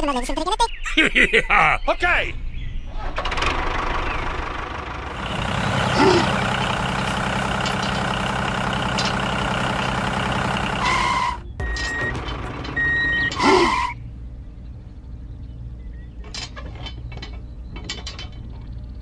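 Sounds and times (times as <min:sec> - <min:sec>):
truck engine running: 0:03.1 - 0:15.1
reversing alarm beeps: 0:11.6 - 0:12.2, 0:12.8 - 0:14.0.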